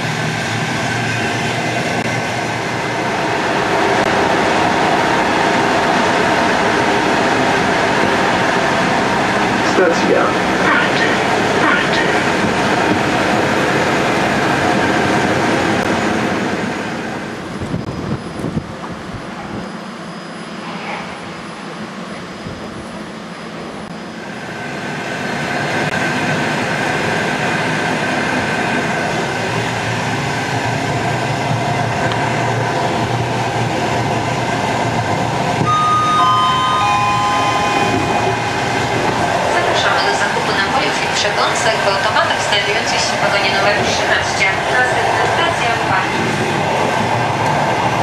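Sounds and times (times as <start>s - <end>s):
train running noise: 0.0s - 48.0s
falling three-note chime: 35.6s - 38.3s.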